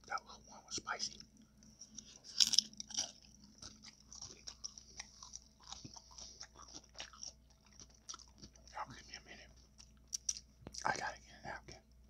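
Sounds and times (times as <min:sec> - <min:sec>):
taco crunching when bitten: 0:01.9 - 0:08.8.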